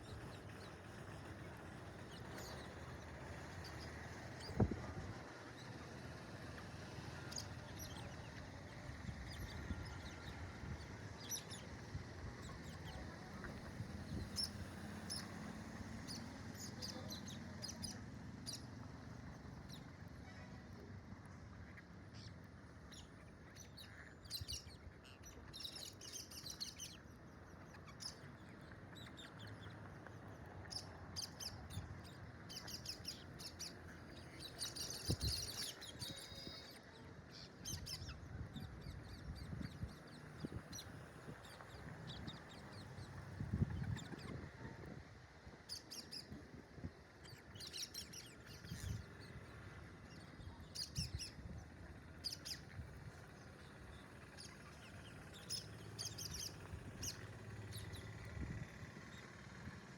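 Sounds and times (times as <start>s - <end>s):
parakeets chirping: 30.7s - 44.8s, 47.2s - 58.2s.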